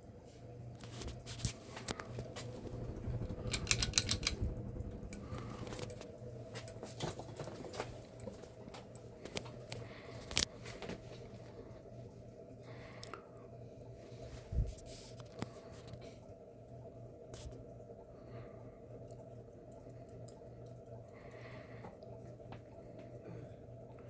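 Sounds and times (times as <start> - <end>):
low motor hum: 0.0 - 10.4
sharp clicks and light rattles: 1.3 - 10.5
jangling metallic clicks: 3.4 - 4.4.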